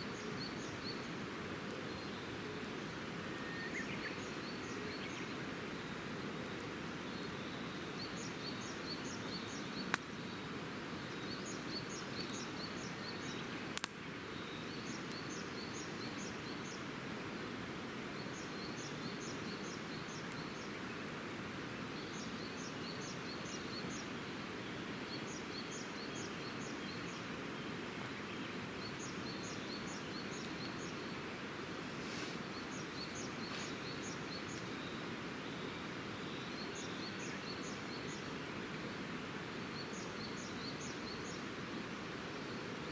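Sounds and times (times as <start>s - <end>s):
campfire burning: 0.1s - 42.9s
wood popping in fire: 13.8s - 14.0s
small bird calling: 28.9s - 38.3s.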